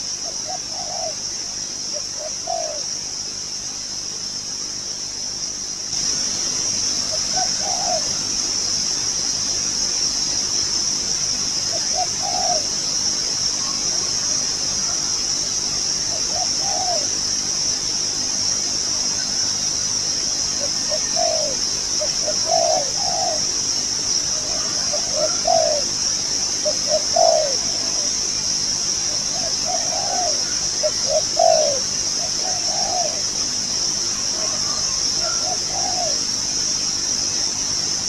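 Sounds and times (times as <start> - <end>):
steady high-pitched hiss: 0.0 - 38.0
dove cooing: 0.2 - 1.3, 1.9 - 2.9, 7.1 - 8.3, 11.6 - 13.0, 16.1 - 17.2, 20.6 - 23.6, 24.2 - 28.3, 29.0 - 33.4, 34.2 - 36.4.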